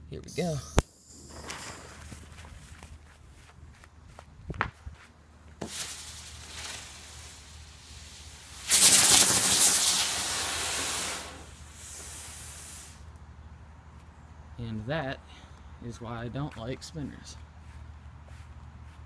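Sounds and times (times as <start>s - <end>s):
firework spinner hissing: 0.3s - 2.1s, 5.6s - 13.1s
burning fuse sputtering hiss: 5.6s - 13.1s.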